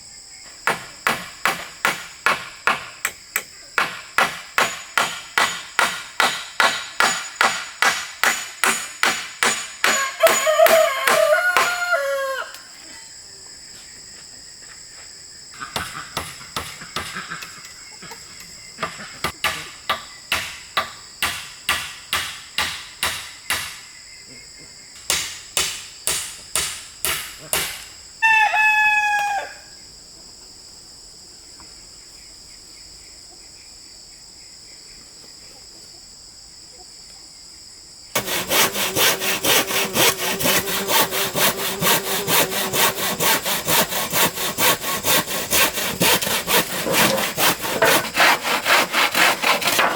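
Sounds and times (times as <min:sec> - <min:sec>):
hammer striking wood: 0:00.6 - 0:11.8, 0:18.8 - 0:23.8, 0:25.1 - 0:27.9, 0:38.2 - 0:49.9
hand saw cutting wood: 0:03.8 - 0:11.8, 0:38.2 - 0:49.9
rooster crowing: 0:09.9 - 0:12.7, 0:28.2 - 0:29.8.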